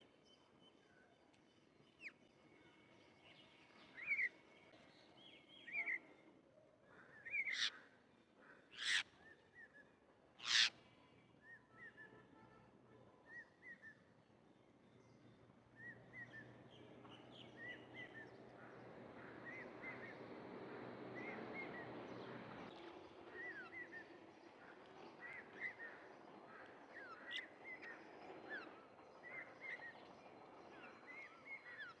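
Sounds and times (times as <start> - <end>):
steady background noise: 15.3 - 32.0.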